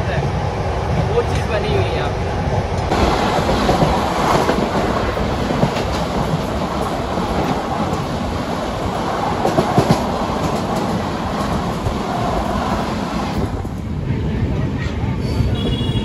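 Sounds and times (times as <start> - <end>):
train wheels rumbling on rail: 0.0 - 16.0
clickety-clack over rail joints: 2.8 - 13.9.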